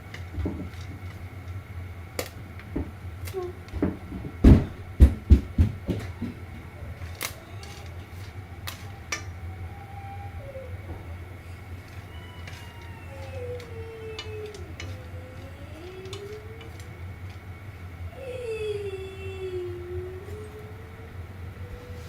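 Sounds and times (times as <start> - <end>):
steady low hum: 0.0 - 22.0
heavy thumps: 3.7 - 6.8.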